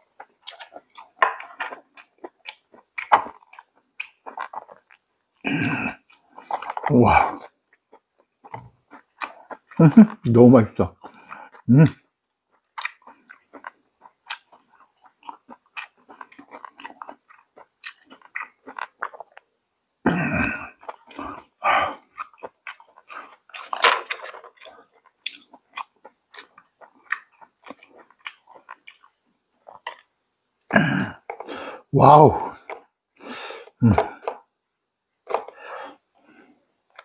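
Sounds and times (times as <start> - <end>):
close chewing and mouth clicks: 0.0 - 19.5, 20.4 - 31.9, 35.2 - 37.0.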